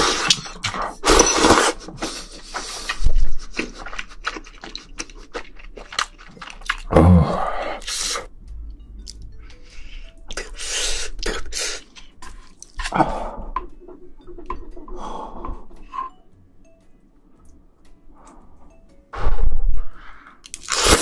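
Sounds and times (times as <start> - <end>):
shrimp being chewed: 1.8 - 6.9.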